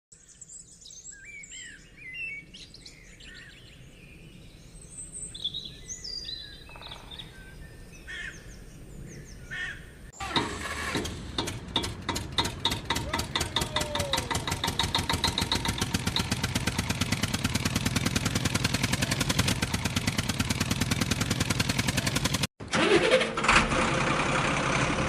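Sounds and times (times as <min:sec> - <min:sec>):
songbirds chirping: 0:00.1 - 0:10.3
engine knocking steadily: 0:10.6 - 0:22.5, 0:23.7 - 0:25.0.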